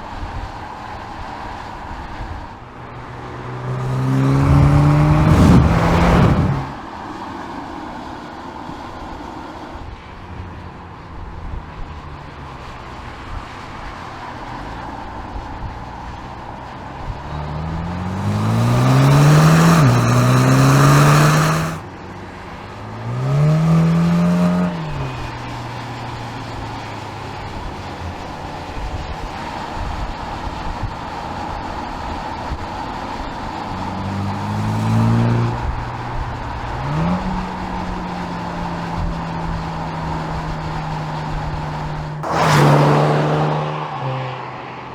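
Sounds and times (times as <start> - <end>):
car engine idling and revving: 0.0 - 44.9.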